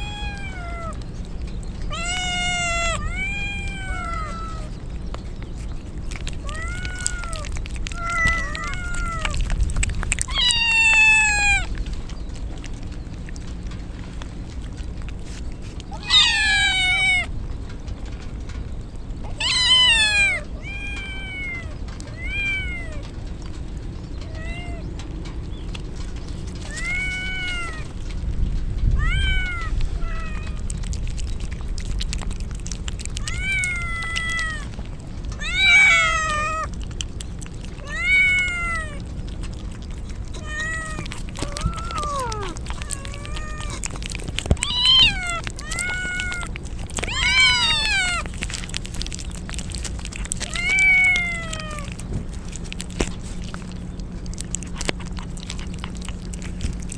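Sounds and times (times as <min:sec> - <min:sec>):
kittens meowing: 0:00.0 - 0:01.1, 0:01.8 - 0:04.8, 0:05.6 - 0:12.2, 0:15.9 - 0:17.3, 0:19.3 - 0:23.1, 0:26.6 - 0:28.0, 0:28.9 - 0:30.8, 0:33.0 - 0:36.8, 0:37.6 - 0:56.9.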